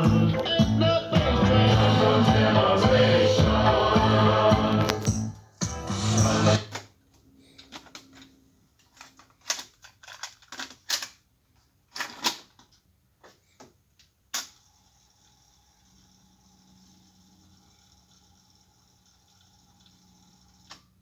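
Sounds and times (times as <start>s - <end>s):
music playback: 0.0s - 6.8s
faint tape hiss with hum: 0.0s - 9.2s.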